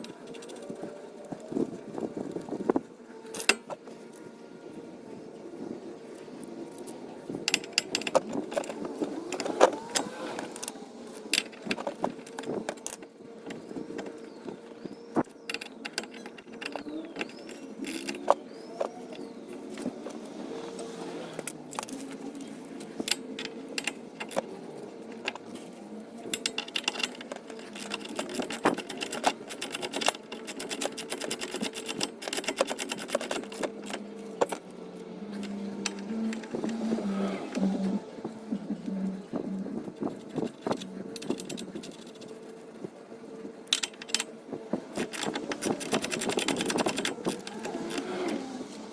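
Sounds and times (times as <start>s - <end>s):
tools clinking on metal: 3.3s - 3.8s, 7.5s - 34.7s, 43.7s - 48.5s
ratchet wrench clicking: 15.5s - 18.4s, 26.3s - 34.7s, 44.9s - 48.4s.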